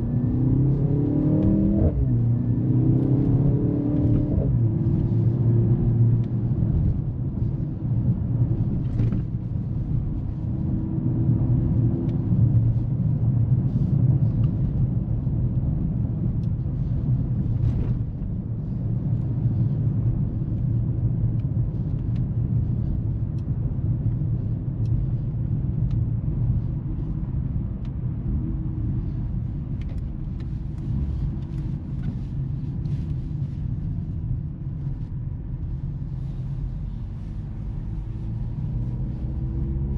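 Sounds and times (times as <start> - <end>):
car engine rumble: 0.0 - 39.9.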